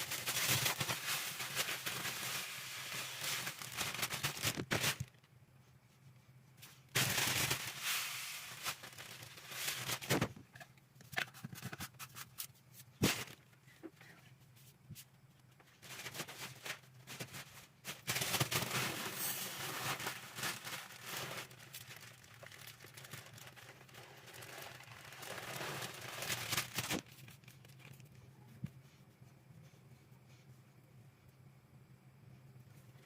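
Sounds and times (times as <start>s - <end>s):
plastic packaging crinkling: 0.0s - 5.2s, 6.9s - 10.6s, 15.8s - 28.1s.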